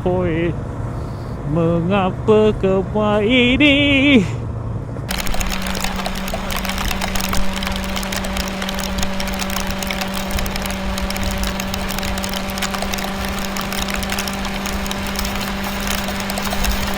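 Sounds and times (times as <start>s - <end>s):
road and wind noise: 0.0s - 16.9s
motorcycle engine running steadily: 5.1s - 16.9s.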